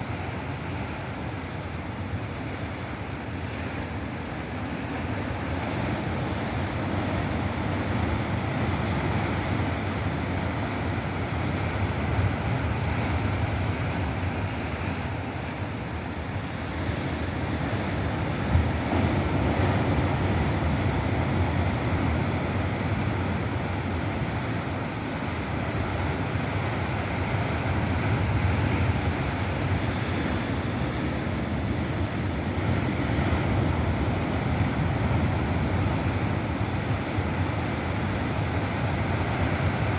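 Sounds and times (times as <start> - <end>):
ocean surf crashing: 0.0 - 39.9.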